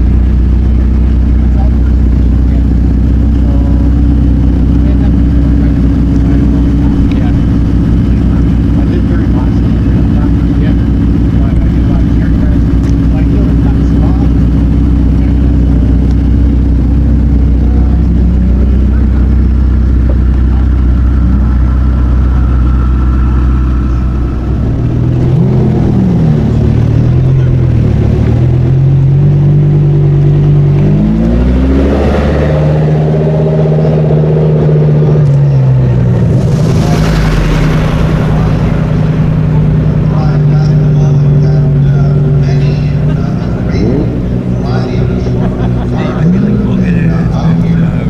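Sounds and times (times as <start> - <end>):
car engine idling and revving: 0.0 - 48.0
hissing rush: 35.8 - 48.0.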